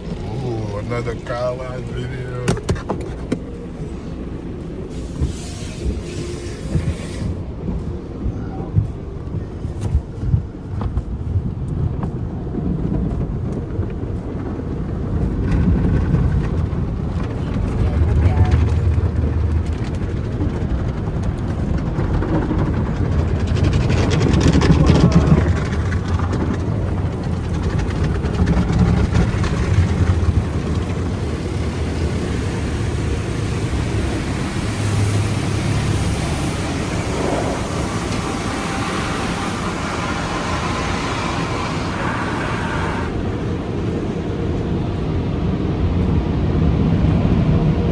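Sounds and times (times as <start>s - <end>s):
car wash machinery rumbling: 0.0s - 47.9s
water spray rushing: 4.8s - 7.4s, 23.8s - 43.2s.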